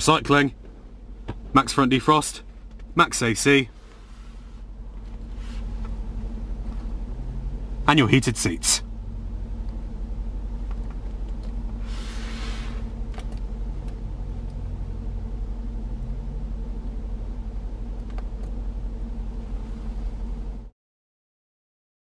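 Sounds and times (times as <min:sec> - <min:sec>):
car engine idling: 0:00.0 - 0:20.7
brief hiss: 0:11.8 - 0:12.9.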